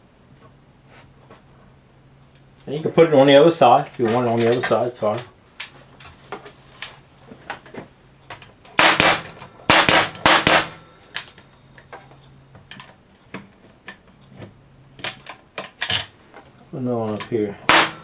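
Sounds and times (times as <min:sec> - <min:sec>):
sharp strikes on wood: 0:08.8 - 0:10.8, 0:17.7 - 0:18.0.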